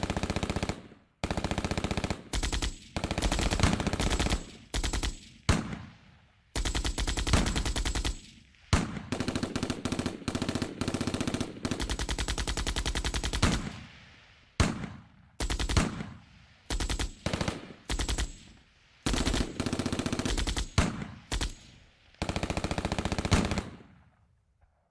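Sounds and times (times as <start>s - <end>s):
machine gun firing bursts: 0.0s - 6.0s, 6.6s - 13.9s, 14.6s - 24.0s.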